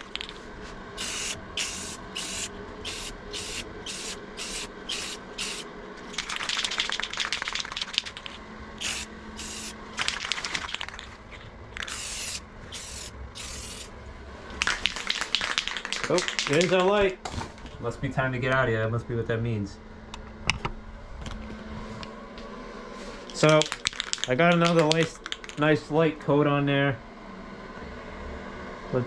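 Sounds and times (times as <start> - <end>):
aerosol spray can hissing: 1.0 - 5.7, 8.8 - 9.8, 11.8 - 13.9.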